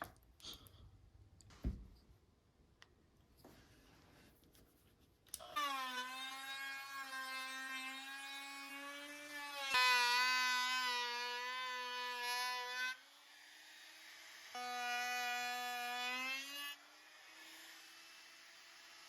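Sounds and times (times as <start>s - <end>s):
power tool motor whining: 5.4s - 19.0s.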